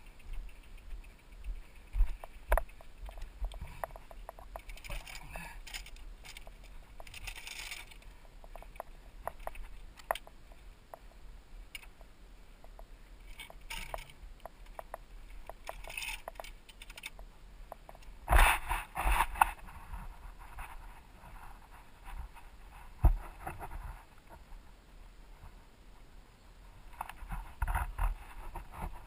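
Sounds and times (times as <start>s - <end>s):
bike clicks and rattles: 0.0s - 20.7s.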